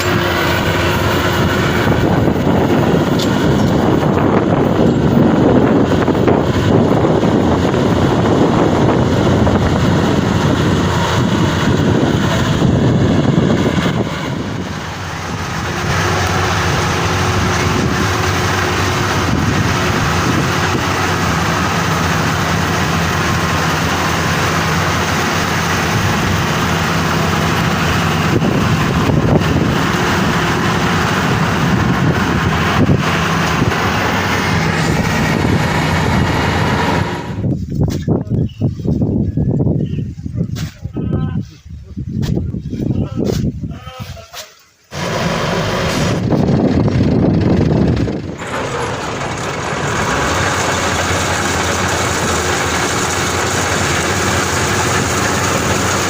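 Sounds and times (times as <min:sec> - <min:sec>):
combine harvester running: 0:00.0 - 0:39.6, 0:44.9 - 0:56.0.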